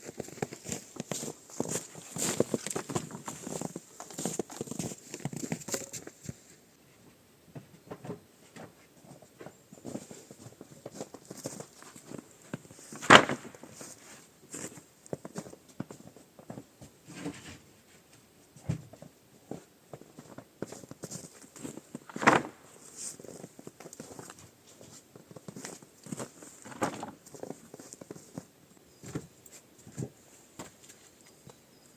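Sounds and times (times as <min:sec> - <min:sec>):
rustling and handling things: 0:00.0 - 0:31.9.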